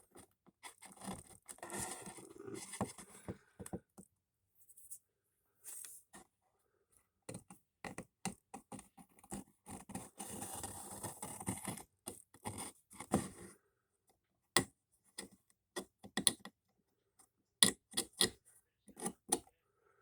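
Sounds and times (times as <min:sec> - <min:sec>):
scraping and scratching: 0:00.0 - 0:03.5.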